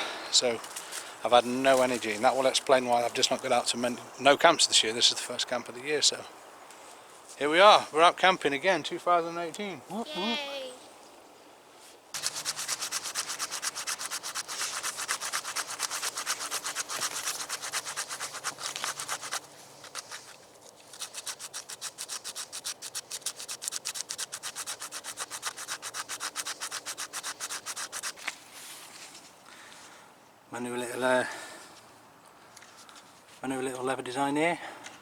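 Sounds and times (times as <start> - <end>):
scraping strokes on wood: 12.2 - 29.2.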